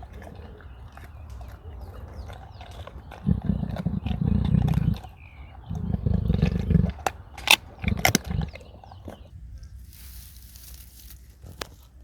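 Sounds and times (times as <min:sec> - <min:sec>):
big cat pulsing growl: 0:00.0 - 0:09.4
sharp clicks: 0:06.8 - 0:08.6.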